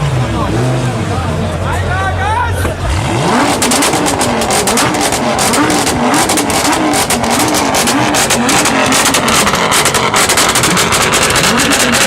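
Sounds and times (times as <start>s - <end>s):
car engine revving: 0.0s - 1.9s, 2.6s - 12.0s
exhaust crackle: 3.5s - 12.0s.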